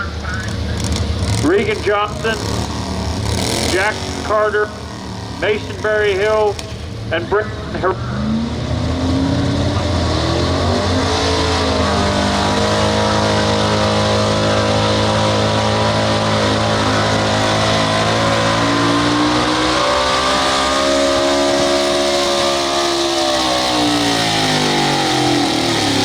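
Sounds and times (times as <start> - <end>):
truck engine revving under load: 0.0 - 26.0.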